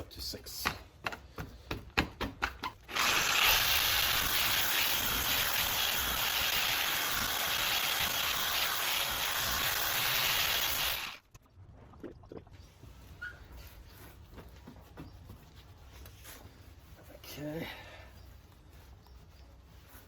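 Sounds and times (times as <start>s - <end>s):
polisher running: 2.9s - 11.2s.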